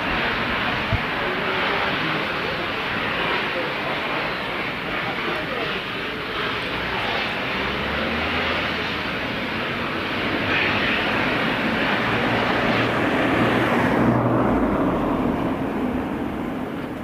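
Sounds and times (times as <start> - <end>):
locomotive engine drone: 0.0 - 17.0.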